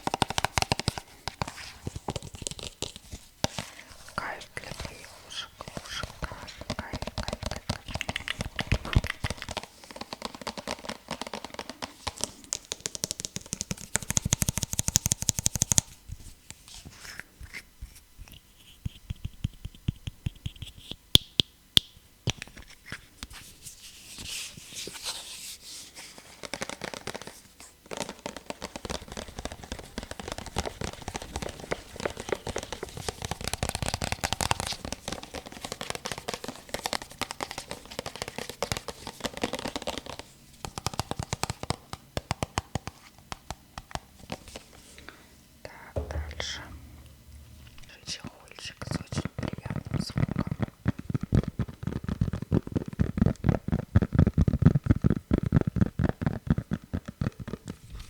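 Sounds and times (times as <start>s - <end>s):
tapping on objects: 45.9s - 49.7s.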